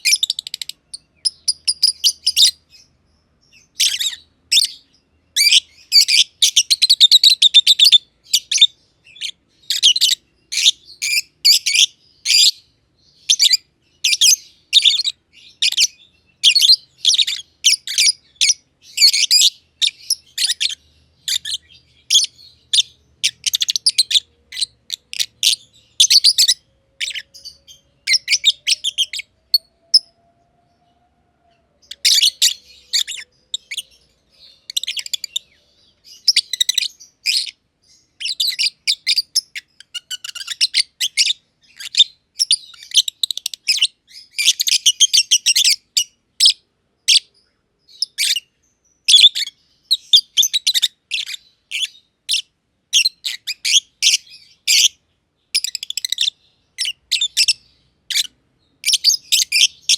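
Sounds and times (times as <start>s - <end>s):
lovebirds chattering: 0.0s - 59.9s.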